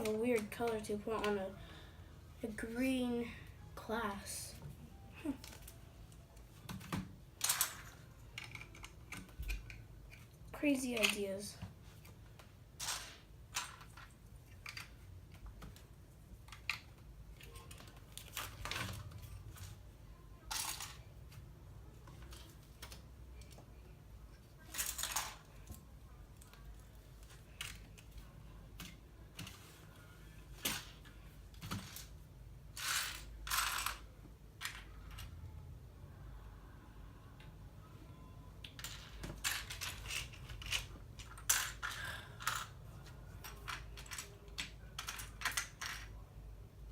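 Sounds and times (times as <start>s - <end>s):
plastic bricks clicking together: 7.4s - 10.4s, 12.8s - 15.7s, 32.8s - 34.0s, 43.4s - 46.2s
plastic bricks clattering: 38.7s - 42.8s.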